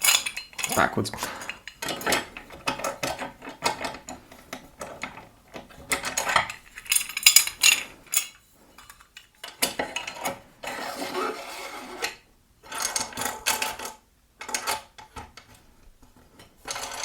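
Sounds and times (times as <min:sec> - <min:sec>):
metal parts clinking and scraping: 0:00.0 - 0:04.2, 0:05.9 - 0:11.0, 0:16.6 - 0:17.0.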